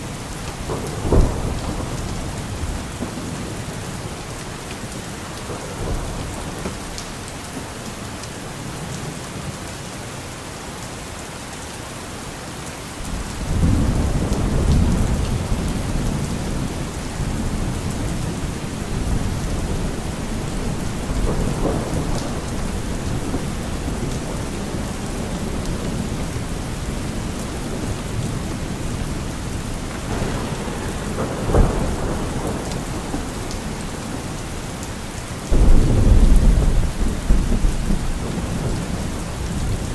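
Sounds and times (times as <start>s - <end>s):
thunder rumbling: 0.0s - 7.0s, 13.1s - 39.9s
rain falling: 0.0s - 39.9s
sharp thunder crack: 29.9s - 34.2s, 35.5s - 39.1s.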